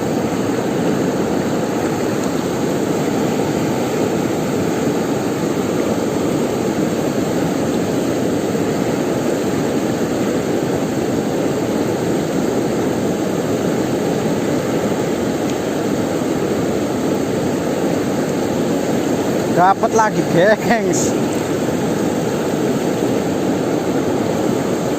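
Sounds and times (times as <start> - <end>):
river water rushing: 0.0 - 24.9.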